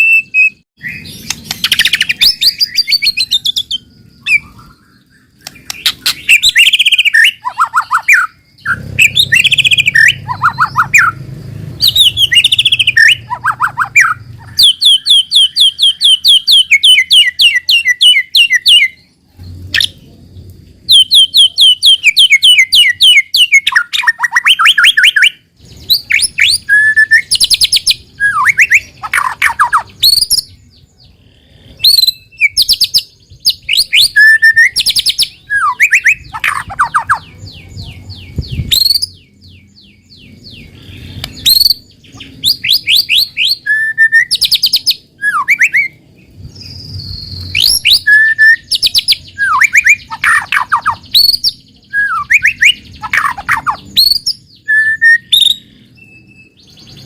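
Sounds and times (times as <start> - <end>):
songbird singing varied song: 0.0 - 57.0.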